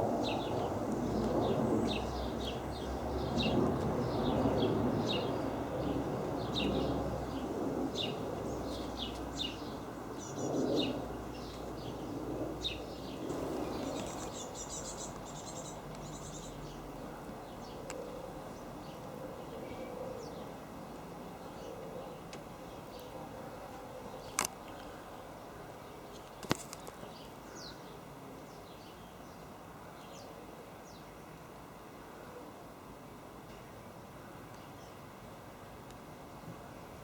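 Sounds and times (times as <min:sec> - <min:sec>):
small songbirds chirping: 0:00.0 - 0:20.6, 0:24.1 - 0:31.2
distant aircraft rumble: 0:00.0 - 0:25.1.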